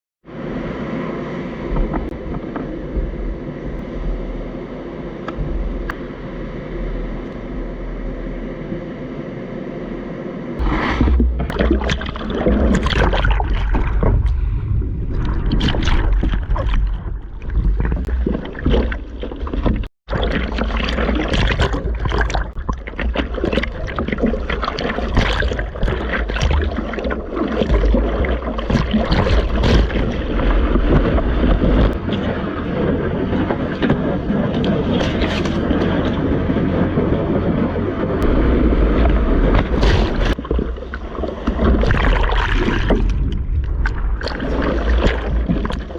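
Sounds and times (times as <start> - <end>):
steady hum: 0.3 - 45.9
sea water splashing: 10.6 - 45.9
wind buffeting microphone: 25.2 - 45.9.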